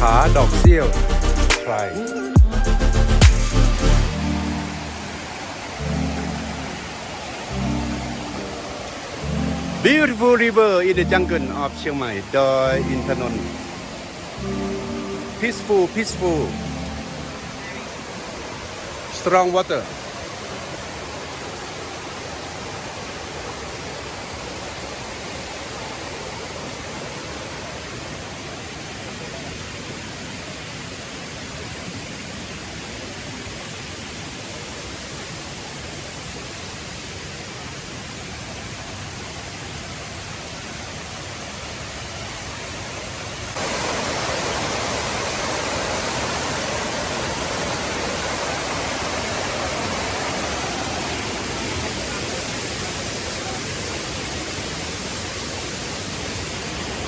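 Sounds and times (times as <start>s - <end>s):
river rushing: 3.1s - 57.0s.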